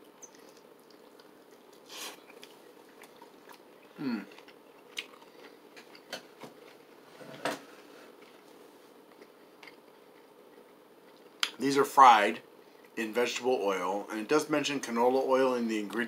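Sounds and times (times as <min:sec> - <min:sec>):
chewing fried chicken: 0:00.0 - 0:07.0, 0:07.9 - 0:11.6.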